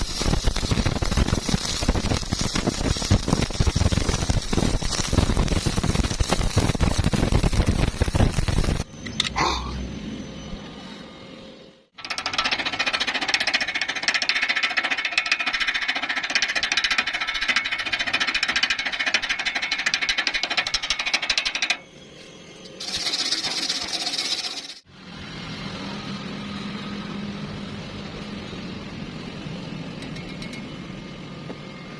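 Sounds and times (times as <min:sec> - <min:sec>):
hissing burst: 0:00.0 - 0:08.9
welding arc crackling: 0:00.0 - 0:08.9.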